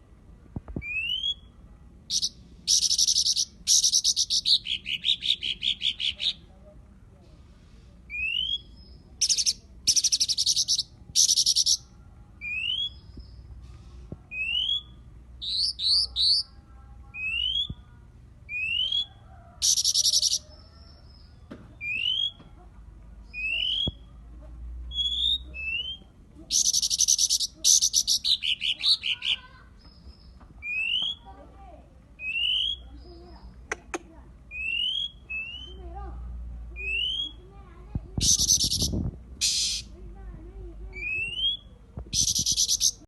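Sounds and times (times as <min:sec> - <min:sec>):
bird whistling song: 0:00.8 - 0:01.5, 0:02.1 - 0:06.4, 0:08.1 - 0:13.4, 0:14.3 - 0:16.5, 0:17.2 - 0:17.8, 0:18.5 - 0:20.5, 0:21.8 - 0:22.4, 0:23.3 - 0:24.1, 0:24.9 - 0:31.3, 0:32.2 - 0:33.2, 0:34.5 - 0:35.8, 0:36.8 - 0:37.4, 0:38.2 - 0:39.9, 0:40.9 - 0:43.0
bird chattering: 0:02.1 - 0:06.5, 0:08.1 - 0:13.0, 0:14.4 - 0:16.6, 0:18.5 - 0:20.6, 0:24.9 - 0:31.3, 0:38.2 - 0:40.0, 0:40.9 - 0:43.0.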